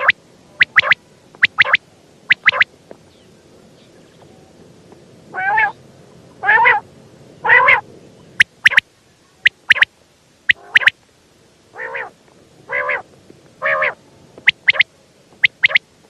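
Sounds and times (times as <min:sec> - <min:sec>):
quail calling: 0:00.0 - 0:02.7, 0:05.3 - 0:05.8, 0:06.4 - 0:06.8, 0:07.4 - 0:07.8, 0:08.4 - 0:08.8, 0:09.4 - 0:09.9, 0:10.5 - 0:11.0, 0:11.8 - 0:15.8.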